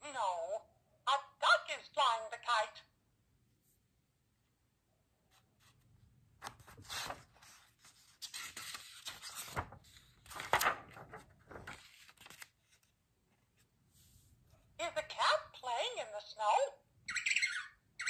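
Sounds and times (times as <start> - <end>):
cardboard pages rustling and scraping: 6.4 - 12.9.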